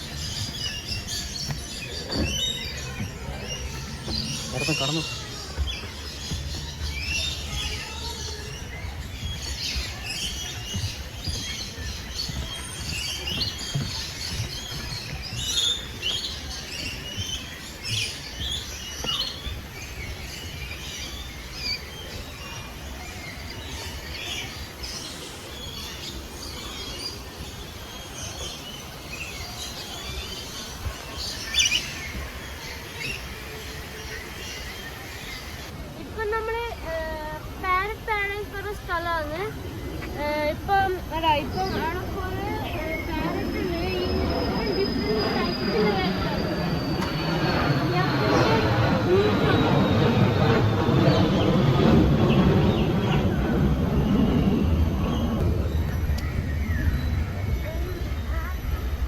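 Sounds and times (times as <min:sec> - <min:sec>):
steady low rumble: 0:00.0 - 0:22.4, 0:35.0 - 0:59.0
birds chirping: 0:00.0 - 0:59.0.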